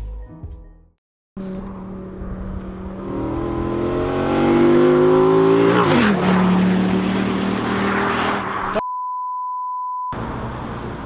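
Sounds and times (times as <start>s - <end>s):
music: 0.0s - 1.0s
vehicle engine accelerating: 1.4s - 8.8s.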